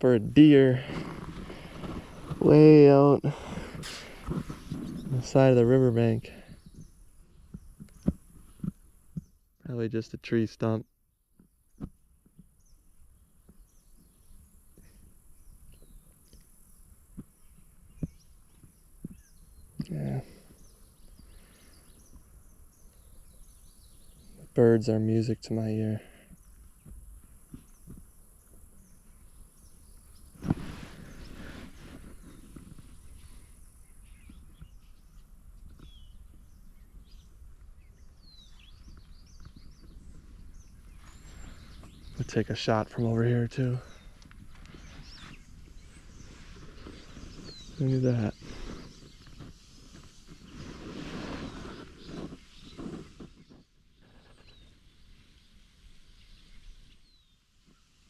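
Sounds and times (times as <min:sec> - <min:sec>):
steady high hiss: 0:00.0 - 0:07.2
songbirds chirping and whistling: 0:00.0 - 0:09.9, 0:11.7 - 0:58.0.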